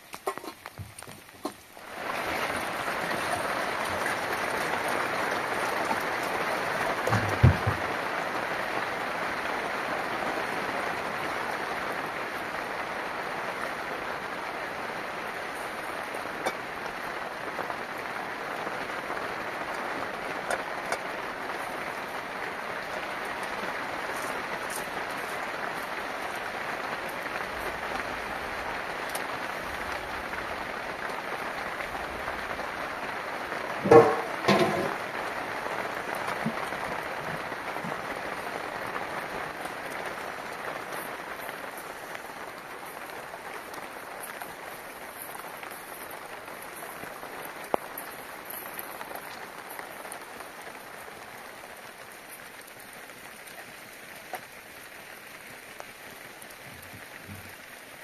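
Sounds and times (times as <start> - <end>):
rain hissing: 0.0 - 58.0.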